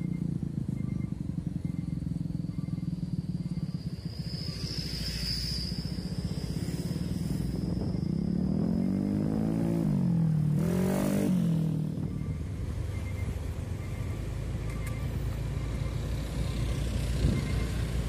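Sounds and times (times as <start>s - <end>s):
vehicle engine revving: 0.0s - 12.4s
thin high whine: 1.7s - 9.4s.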